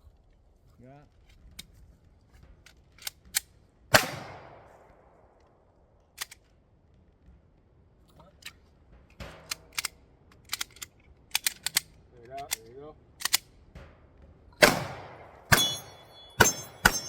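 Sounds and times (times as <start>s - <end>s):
pistol shot: 3.9s - 4.8s, 14.6s - 17.0s.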